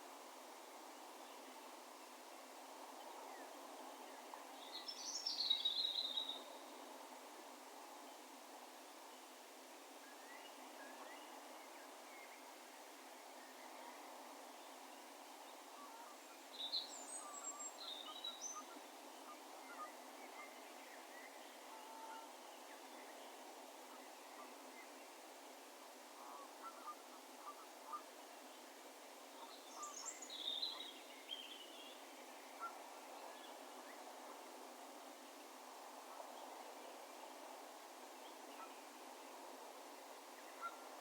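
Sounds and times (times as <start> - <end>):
faint outdoor background hiss: 0.0 - 41.0
distant songbirds chirping: 4.1 - 6.8, 29.4 - 34.1.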